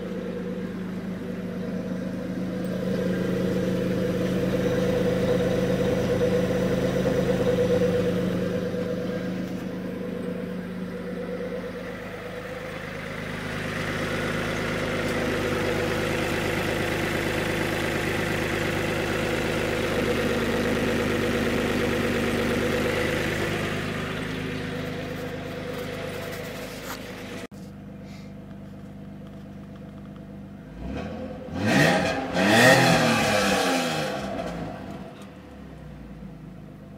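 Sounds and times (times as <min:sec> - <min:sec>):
engine revving in blips: 0:00.0 - 0:27.5, 0:30.7 - 0:35.6
car exhaust note: 0:00.0 - 0:28.5.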